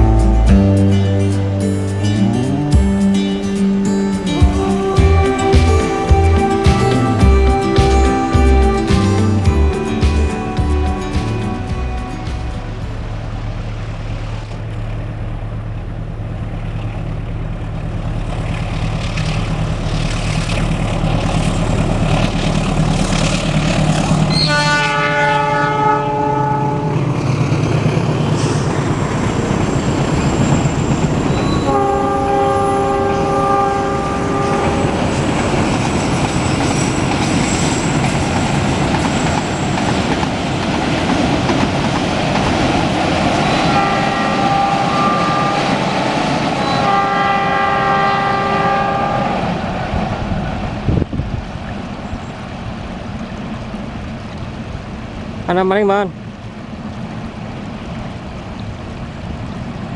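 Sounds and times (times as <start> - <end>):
locomotive engine running: 0.0 - 59.9
train horn blasts: 4.2 - 13.4, 24.0 - 27.2, 31.4 - 35.2, 43.4 - 49.6
train wheels clattering on rails: 26.9 - 47.7.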